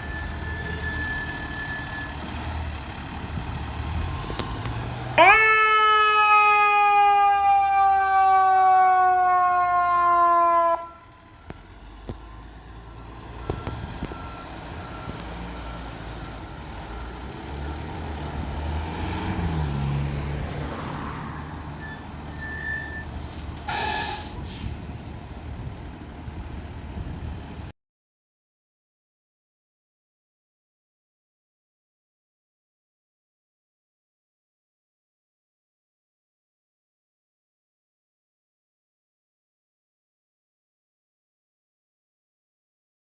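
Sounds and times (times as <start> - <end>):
truck engine rumbling: 0.0 - 27.7
short hiss: 23.2 - 24.8
fire engine air horn blast: 23.7 - 24.8.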